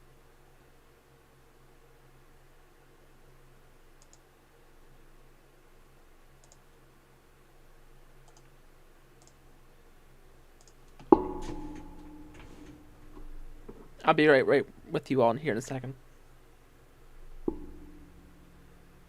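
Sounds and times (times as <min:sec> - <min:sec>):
low steady hum: 0:00.0 - 0:19.0
faint sharp clicks: 0:04.0 - 0:04.2, 0:06.4 - 0:06.6, 0:08.2 - 0:08.5, 0:10.6 - 0:10.9
loud ringing knock: 0:11.1 - 0:12.8, 0:17.5 - 0:18.3.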